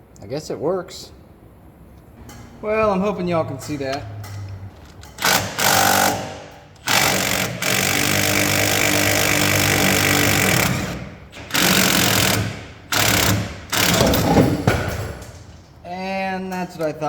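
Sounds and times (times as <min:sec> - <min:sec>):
impact wrench running: 0:04.4 - 0:15.3.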